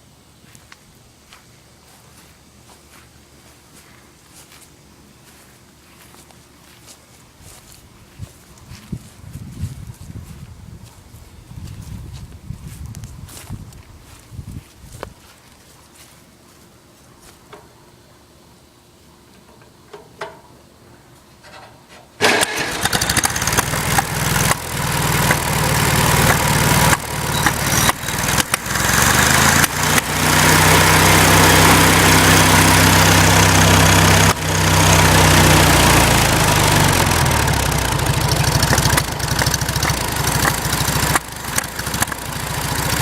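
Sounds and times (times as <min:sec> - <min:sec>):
tractor engine running: 0:22.2 - 0:43.0.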